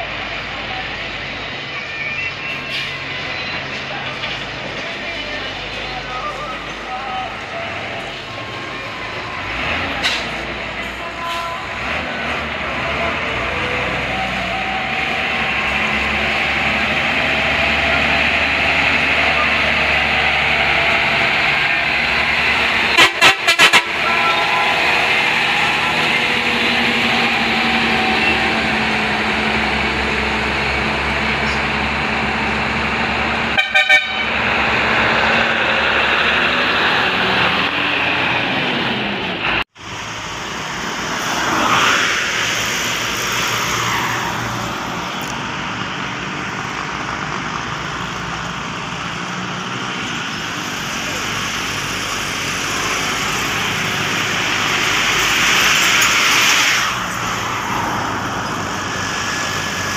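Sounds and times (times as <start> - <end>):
heavy traffic: 0.0 - 59.9
horn tooting: 10.9 - 11.8, 20.5 - 29.3, 33.5 - 34.5.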